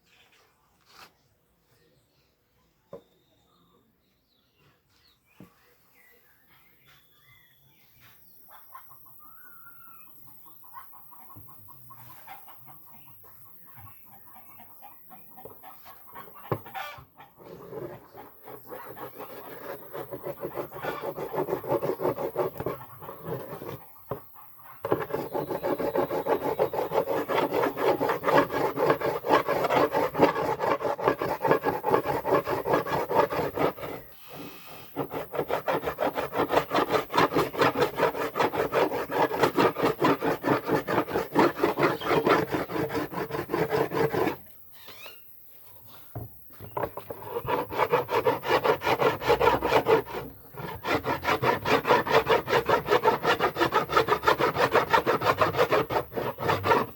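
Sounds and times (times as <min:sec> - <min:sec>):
hand tool rasping on wood: 0:17.4 - 0:44.5, 0:46.6 - 0:56.9.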